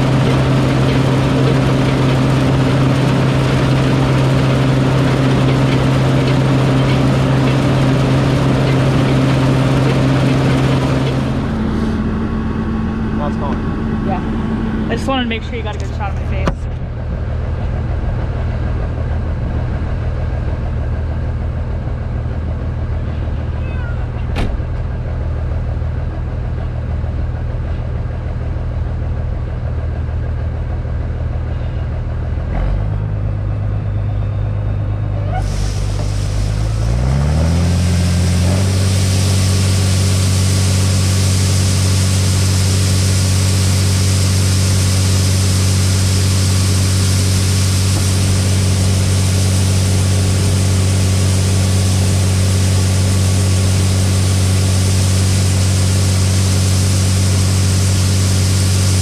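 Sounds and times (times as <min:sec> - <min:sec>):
farm machine engine revving: 0:00.0 - 0:16.4, 0:34.7 - 0:59.0
rushing whir of machinery: 0:00.0 - 0:59.0.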